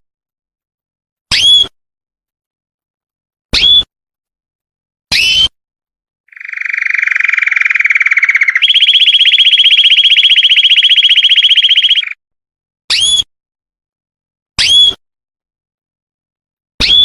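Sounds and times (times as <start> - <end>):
canary chirp and rapid trill: 6.3 - 12.2.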